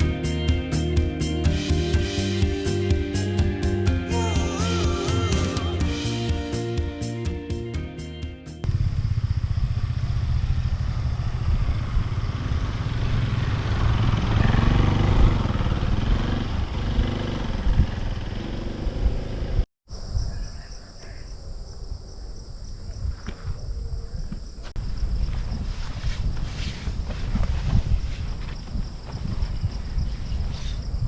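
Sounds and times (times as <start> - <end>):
music: 0.0 - 8.7
motorcycle engine rumble: 8.6 - 19.6.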